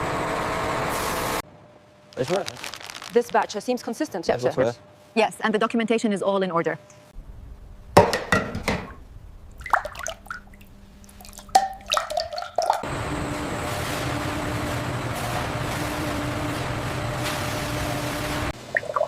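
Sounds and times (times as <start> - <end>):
steady rushing with low hum: 7.1 - 8.1, 8.9 - 11.2
liquid splashing and dripping: 9.4 - 12.8.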